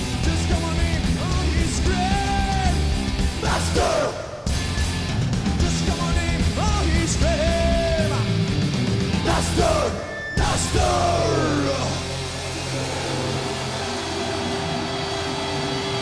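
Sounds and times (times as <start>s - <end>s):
heavy metal music: 0.0s - 16.0s
shouted vocals: 0.7s - 4.4s, 9.1s - 16.0s.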